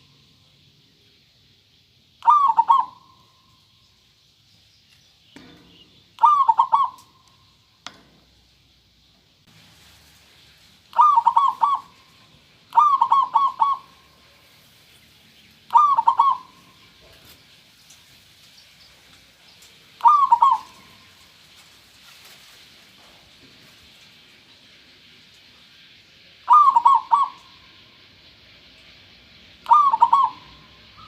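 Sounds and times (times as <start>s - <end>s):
dove cooing: 2.2s - 3.2s, 6.2s - 7.2s, 10.9s - 12.1s, 12.7s - 14.3s, 15.7s - 16.8s, 20.0s - 21.2s, 26.5s - 27.6s, 29.6s - 31.0s.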